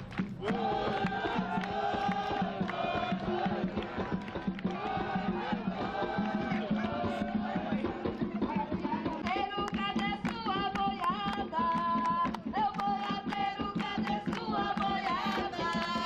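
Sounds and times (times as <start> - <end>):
fast percussion beat: 0.0 - 16.0
voices singing a chant: 0.4 - 9.2, 12.7 - 16.0.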